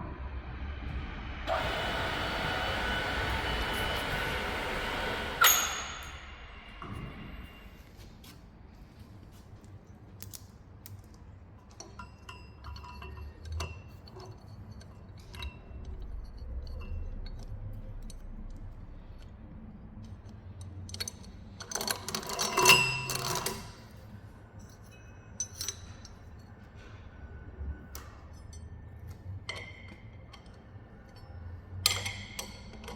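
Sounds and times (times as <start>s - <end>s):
low workshop hum: 0.0s - 32.9s
metallic clatter with ringing: 4.8s - 7.6s
metal tools clinking: 5.4s - 6.4s, 24.6s - 26.9s.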